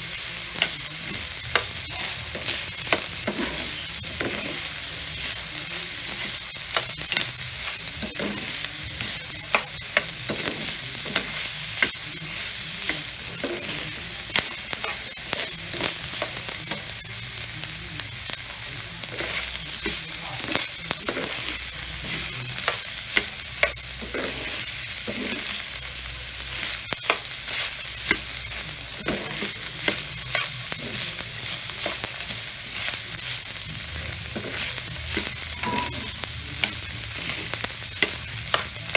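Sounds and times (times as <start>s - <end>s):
food sizzling in a wok: 0.0s - 38.9s
spatula scraping and tapping pan: 0.6s - 4.7s, 6.2s - 12.0s, 19.1s - 25.6s, 27.0s - 28.3s, 29.0s - 32.1s, 34.3s - 38.9s.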